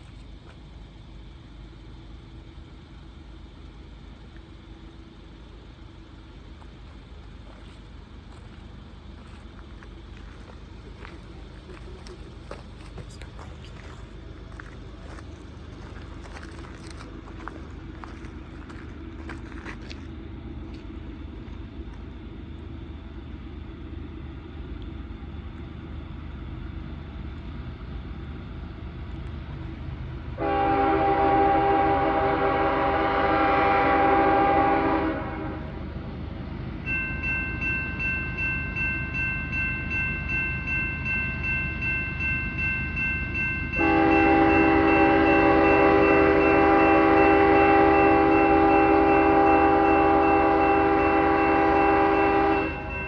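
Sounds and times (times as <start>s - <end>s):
locomotive rumbling: 0.0s - 53.0s
train air horn: 30.4s - 35.8s, 43.8s - 53.0s
crossing bell ringing: 36.8s - 53.0s.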